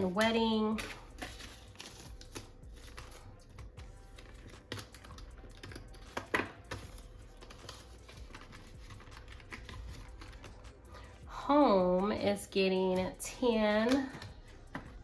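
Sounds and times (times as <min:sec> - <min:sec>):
plastic envelope crinkle: 0:00.0 - 0:03.3, 0:04.2 - 0:10.7
paper and plastic rustling: 0:00.8 - 0:03.2, 0:04.2 - 0:10.6.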